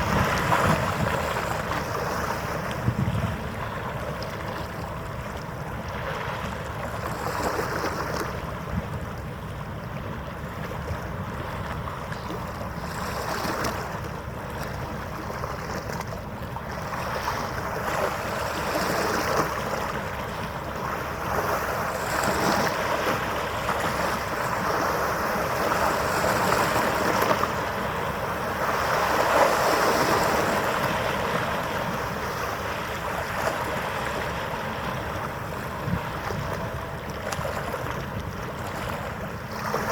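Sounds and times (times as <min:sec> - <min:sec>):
wind on microphone: 0:00.0 - 0:04.7, 0:21.2 - 0:39.9
harbour water washing: 0:00.0 - 0:39.9.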